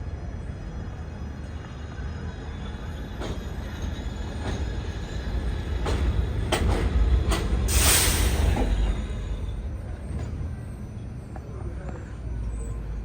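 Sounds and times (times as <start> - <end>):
subway train rumbling: 0.0 - 13.0
wheels clacking over rail joints: 5.6 - 7.8
high-pitched hiss or squeal: 7.7 - 8.8.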